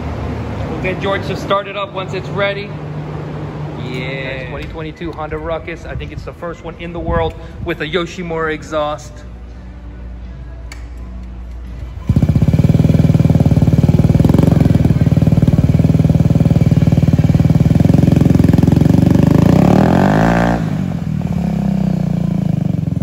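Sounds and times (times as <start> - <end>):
scooter engine running: 11.8 - 23.0.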